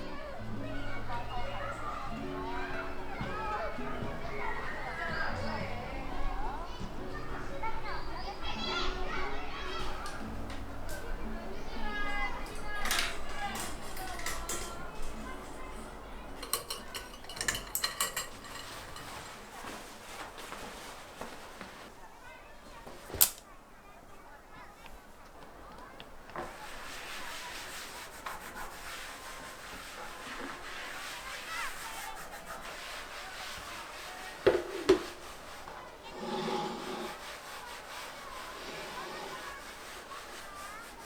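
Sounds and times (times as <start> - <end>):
kitchenware clinking: 0.0 - 20.2
faint household background: 0.0 - 41.0
quiet handling sounds: 0.0 - 41.0.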